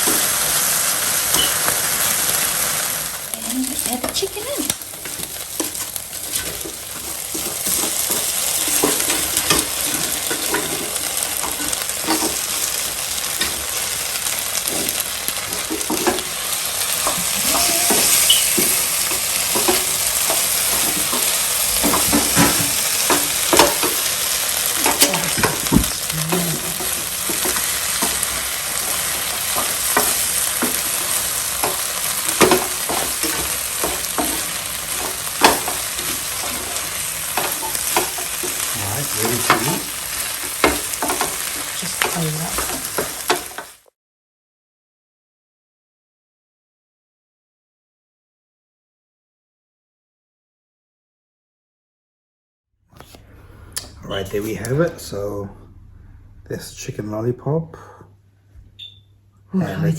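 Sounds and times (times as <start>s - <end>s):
food sizzling in a pan: 0.0s - 43.9s
utensil scraping a pan: 5.0s - 13.8s, 14.6s - 43.7s.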